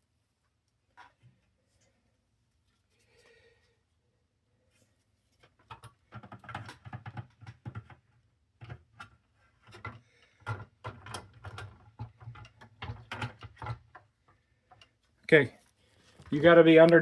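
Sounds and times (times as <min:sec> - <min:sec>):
plastic parts clicking and knocking: 0:05.4 - 0:15.0.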